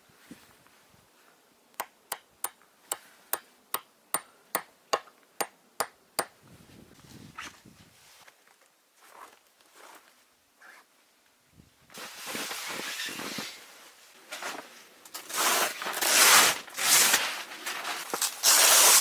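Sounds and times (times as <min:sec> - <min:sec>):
soft rustle: 0:00.0 - 0:01.5, 0:06.6 - 0:11.0.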